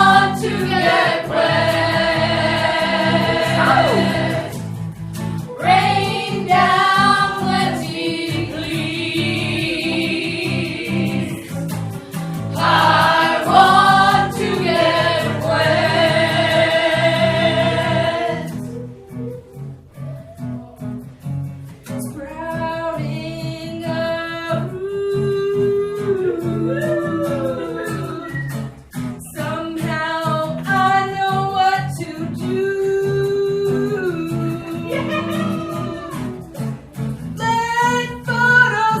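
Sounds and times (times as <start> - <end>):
singing in long held notes: 0.0 - 4.6
strummed guitar: 0.0 - 39.0.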